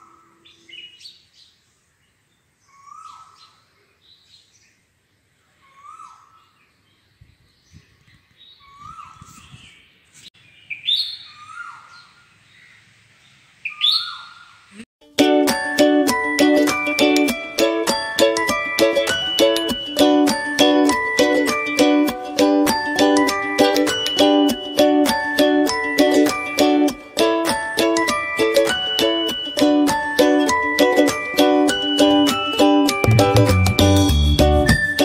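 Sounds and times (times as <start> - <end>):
birds chirping: 0.0 - 14.8
plucked-string music: 15.0 - 35.0.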